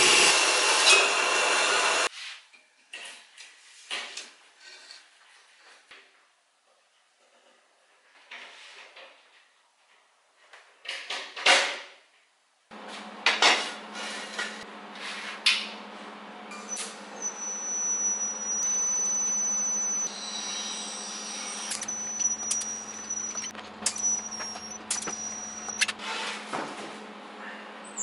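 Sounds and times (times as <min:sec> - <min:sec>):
high-pitched regulator whine: 0:16.5 - 0:26.0.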